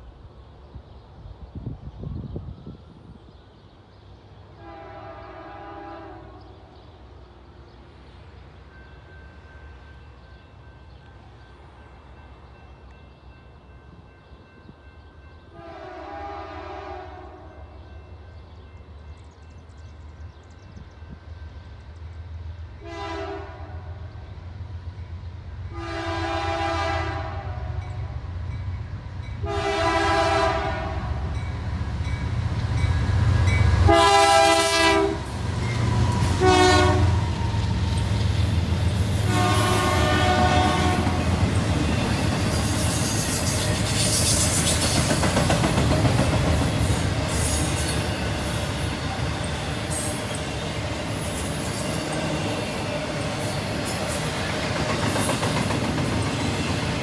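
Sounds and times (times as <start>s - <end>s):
locomotive engines rumbling: 0.0s - 57.0s
locomotive chime horn blasts: 4.6s - 6.5s, 15.5s - 18.2s, 22.8s - 24.1s, 25.7s - 28.2s, 29.3s - 31.5s, 33.6s - 37.6s, 39.1s - 42.2s
train wheels clattering on rail: 35.3s - 57.0s.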